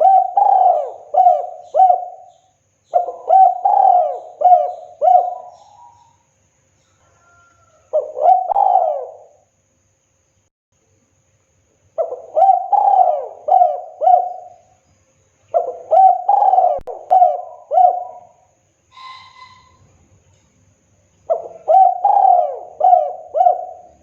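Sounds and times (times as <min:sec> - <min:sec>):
dove cooing: 0:00.0 - 0:06.2, 0:07.1 - 0:09.5, 0:12.0 - 0:14.7, 0:15.5 - 0:19.9, 0:21.3 - 0:24.0
faint high whistle: 0:18.9 - 0:20.0.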